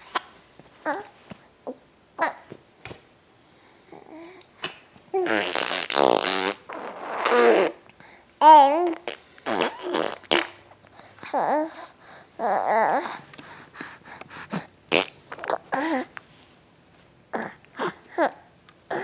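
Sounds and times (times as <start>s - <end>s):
mouth fart noises: 5.2s - 7.8s, 8.9s - 10.6s, 14.9s - 15.6s.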